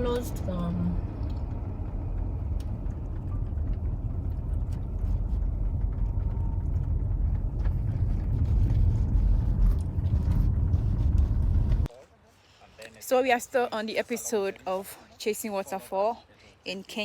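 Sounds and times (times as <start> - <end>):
car rumble inside cabin: 0.0 - 11.9.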